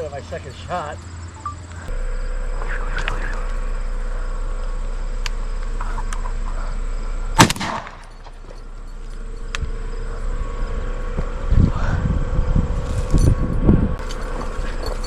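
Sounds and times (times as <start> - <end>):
shotgun shot: 7.4 - 8.1.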